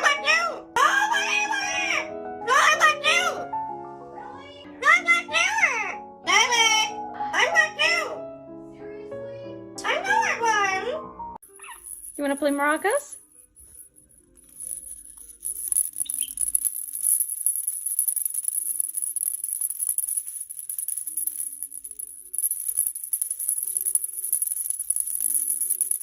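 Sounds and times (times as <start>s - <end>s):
maraca rattling: 11.4s - 26.0s.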